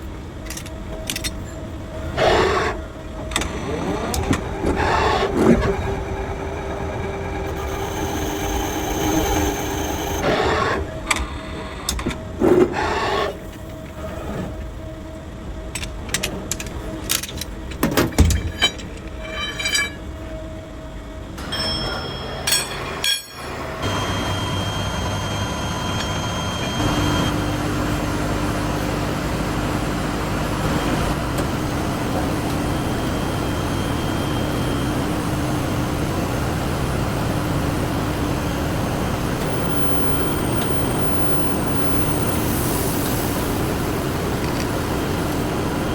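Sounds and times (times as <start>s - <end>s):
machine running: 0.4s - 15.0s, 21.2s - 45.9s
faint constant hum: 13.3s - 23.8s
metal clanks and knocks: 15.8s - 20.2s, 21.4s - 23.6s.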